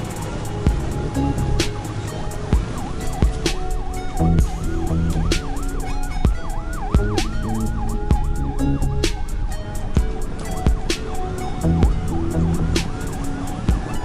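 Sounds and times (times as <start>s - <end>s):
emergency siren yelping: 0.0s - 14.0s
music with heavy drum beat: 0.0s - 14.0s.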